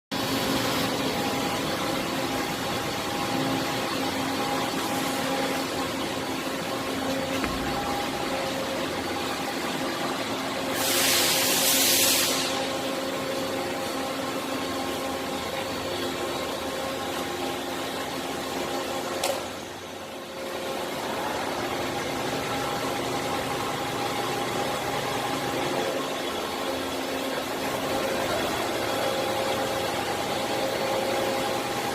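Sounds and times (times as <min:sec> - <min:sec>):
milling machine humming: 0:00.2 - 0:11.8
hiss: 0:10.6 - 0:12.8.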